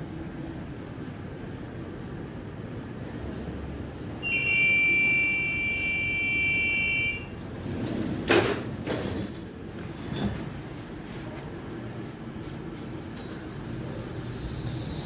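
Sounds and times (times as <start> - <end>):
low rumble of standing tram: 0.0 - 15.0
high electronic warning tone: 4.2 - 7.4.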